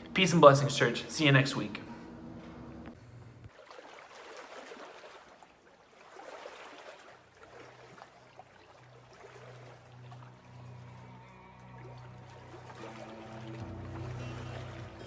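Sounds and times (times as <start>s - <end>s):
low steady drone: 8.9s - 15.0s.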